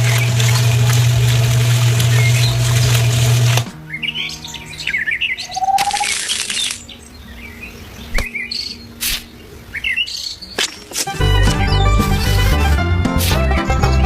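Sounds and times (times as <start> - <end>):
small birds chirping: 2.0 - 3.2, 3.8 - 12.4
sharp clicks: 5.7 - 6.9.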